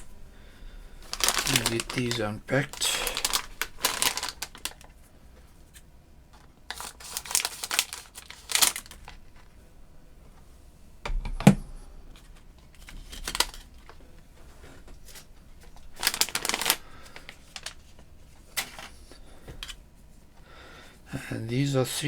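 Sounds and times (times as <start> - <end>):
plastic packaging crinkling and tearing: 1.0 - 5.0, 6.4 - 9.5, 12.7 - 14.0, 15.1 - 19.0.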